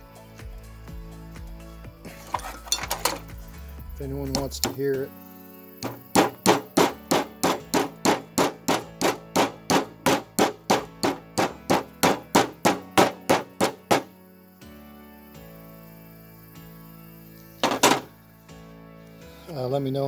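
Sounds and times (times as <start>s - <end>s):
rapid hammer blows: 5.8s - 14.2s, 17.6s - 18.1s.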